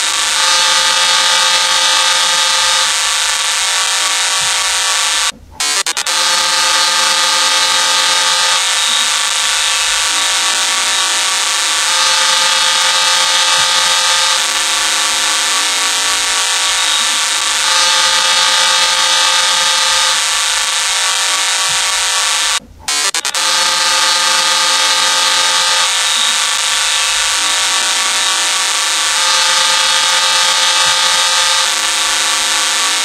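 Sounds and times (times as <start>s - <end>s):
sustained chord horn: 5.7s - 33.0s.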